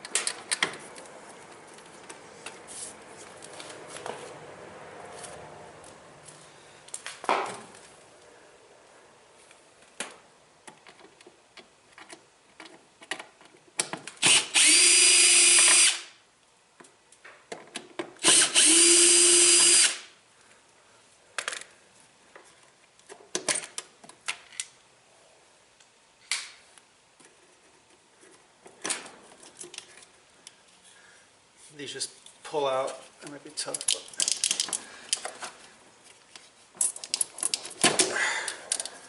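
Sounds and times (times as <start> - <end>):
power drill running: 14.2 - 16.0, 18.2 - 20.0
clicks of handled parts: 33.6 - 35.5, 36.1 - 39.0.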